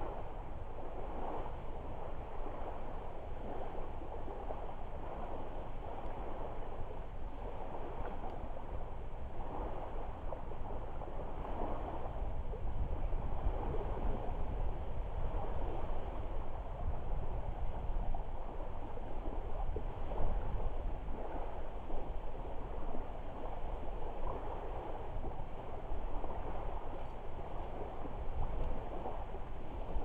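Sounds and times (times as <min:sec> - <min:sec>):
low wind rumble: 0:00.0 - 0:30.0
waves lapping at shore: 0:00.0 - 0:30.0.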